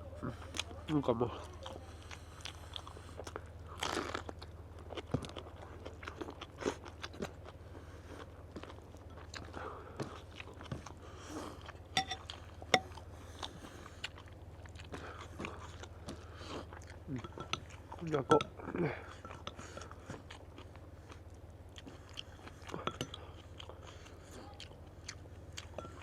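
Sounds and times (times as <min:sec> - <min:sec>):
chewing and crunching food: 0:00.0 - 0:26.0
low hum: 0:07.4 - 0:26.0.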